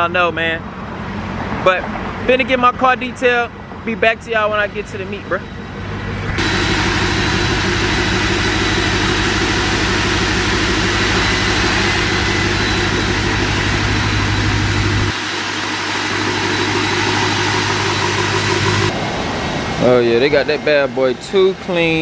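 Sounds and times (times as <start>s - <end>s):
motor drone: 5.8s - 19.8s.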